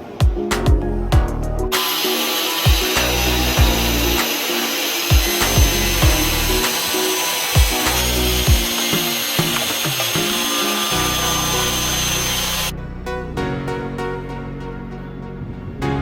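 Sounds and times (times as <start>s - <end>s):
electronic music with thumping beat: 0.0s - 12.7s
power tool whining: 1.7s - 12.7s.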